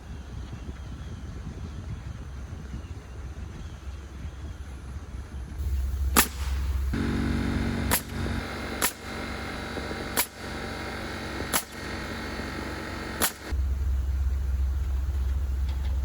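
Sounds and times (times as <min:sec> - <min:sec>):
steady motor hum: 0:04.3 - 0:16.0
nail gun shots into wood: 0:06.1 - 0:07.1, 0:07.8 - 0:13.5.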